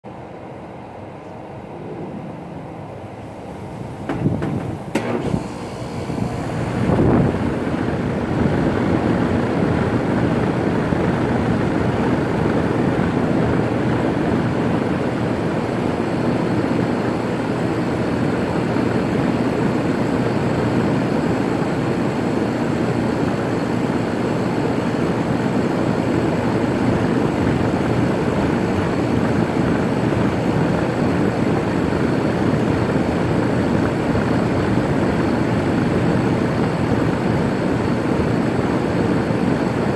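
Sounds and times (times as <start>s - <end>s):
air conditioner unit whooshing drone: 0.0s - 39.9s.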